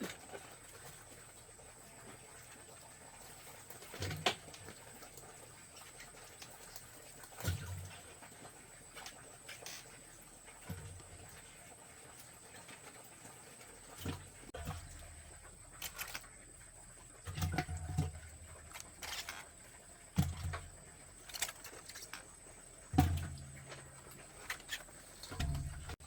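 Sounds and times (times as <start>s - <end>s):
dull thuds: 22.9s - 26.0s.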